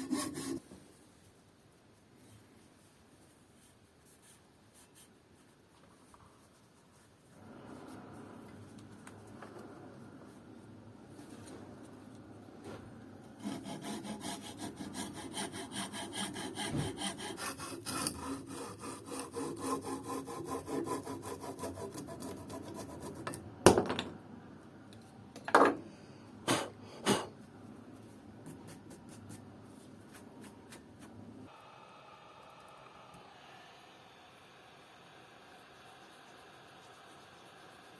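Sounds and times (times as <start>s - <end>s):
hand tool strokes on wood: 0.0s - 0.7s, 13.4s - 23.0s.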